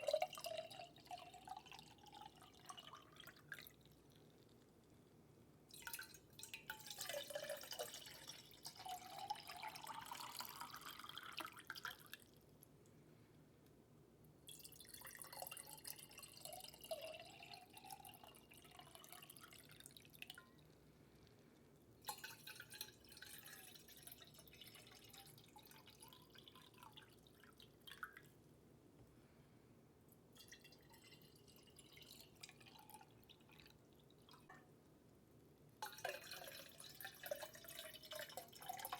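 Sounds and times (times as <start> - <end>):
water dripping and trickling: 22.1 - 28.3, 35.8 - 38.9.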